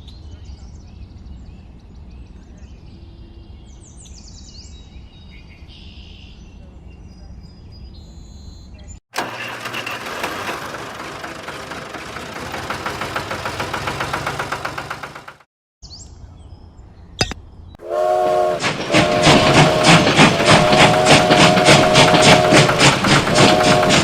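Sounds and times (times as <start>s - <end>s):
rhythmic train clatter: 9.2s - 15.5s, 17.8s - 24.0s
horn or whistle: 17.8s - 24.0s
rhythmic chugging: 18.5s - 24.0s.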